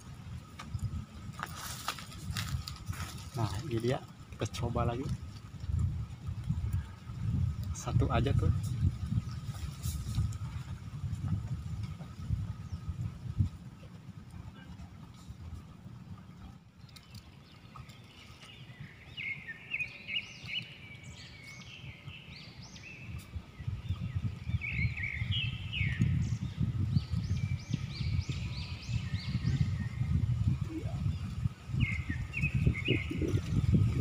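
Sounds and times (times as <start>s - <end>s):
small birds chirping: 16.4s - 34.0s.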